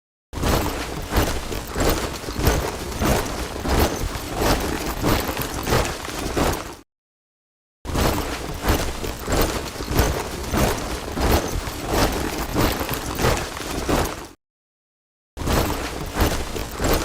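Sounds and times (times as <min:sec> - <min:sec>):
soldiers marching in step: 0:00.5 - 0:06.8, 0:08.2 - 0:14.4.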